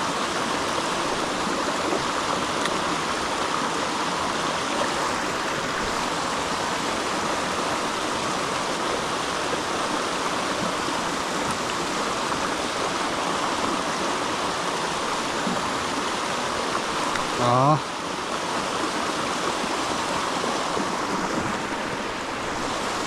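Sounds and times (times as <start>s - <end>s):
creek water running: 0.0s - 23.0s.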